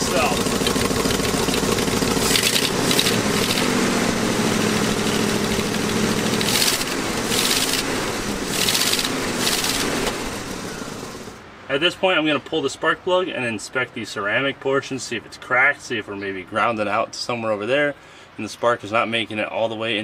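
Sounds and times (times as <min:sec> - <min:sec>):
engine idling with a miss: 0:00.0 - 0:11.4.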